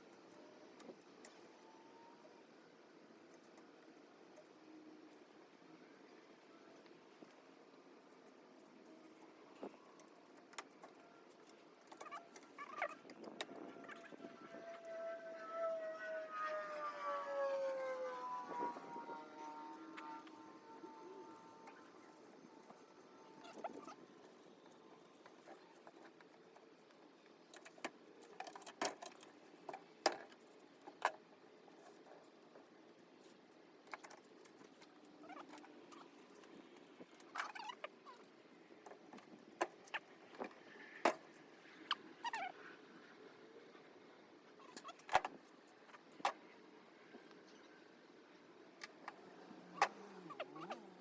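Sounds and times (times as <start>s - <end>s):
faint hum: 0.0s - 51.0s.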